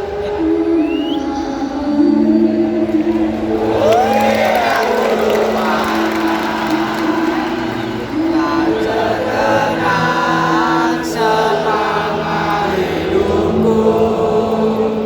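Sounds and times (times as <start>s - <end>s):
stadium crowd singing a chant: 0.0s - 15.0s.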